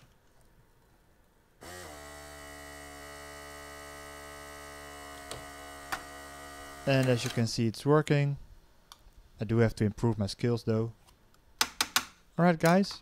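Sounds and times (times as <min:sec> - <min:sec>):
electric motor hum: 0:01.6 - 0:07.4.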